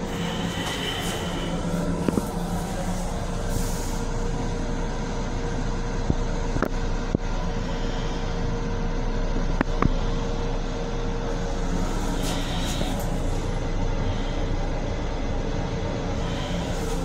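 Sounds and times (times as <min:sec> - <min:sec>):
constant hum: 0:00.0 - 0:17.0
electric railcar rumble: 0:00.0 - 0:17.0.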